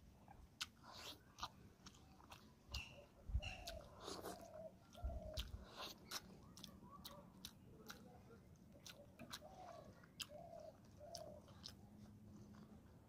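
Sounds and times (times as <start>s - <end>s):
wet chewing: 0.0s - 13.0s
mouth clicks: 0.6s - 8.2s.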